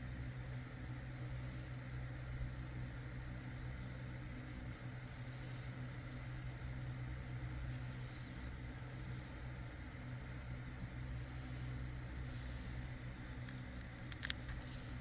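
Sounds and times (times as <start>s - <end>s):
low electrical hum: 0.0s - 15.0s
paper rustling and rubbing: 13.2s - 15.0s.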